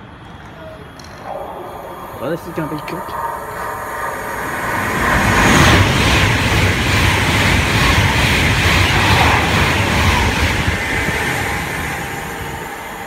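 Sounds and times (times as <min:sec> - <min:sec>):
electric train passing: 0:00.0 - 0:13.0
rush of wheels and air: 0:03.2 - 0:13.0.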